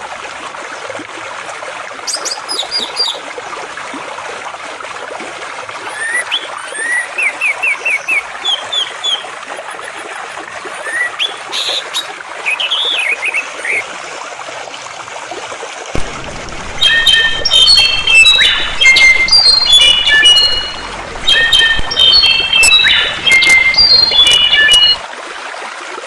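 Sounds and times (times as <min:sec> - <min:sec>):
water trickling: 0:00.0 - 0:26.0
bird singing whistled notes: 0:02.1 - 0:03.2, 0:05.9 - 0:09.3, 0:10.8 - 0:13.8, 0:16.8 - 0:25.0
songbirds chirping: 0:05.9 - 0:13.8, 0:16.8 - 0:25.0.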